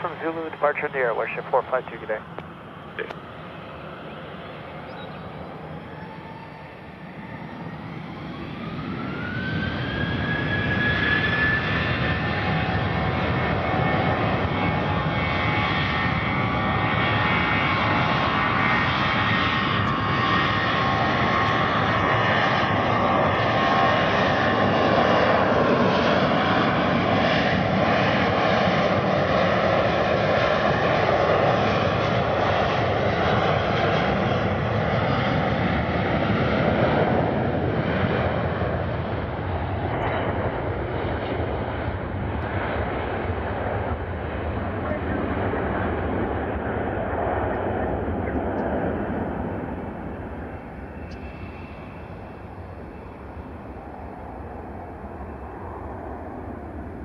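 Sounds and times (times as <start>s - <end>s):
jet engines spooling up: 44.9s - 57.0s.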